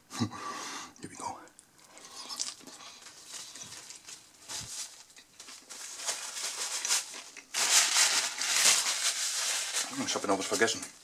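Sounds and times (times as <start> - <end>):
person chewing food: 1.7 - 4.0.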